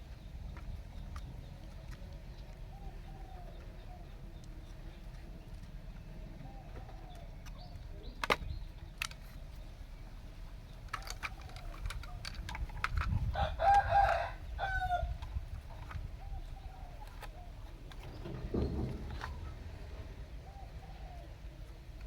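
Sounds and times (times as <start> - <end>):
rooster crowing: 13.4 - 15.1.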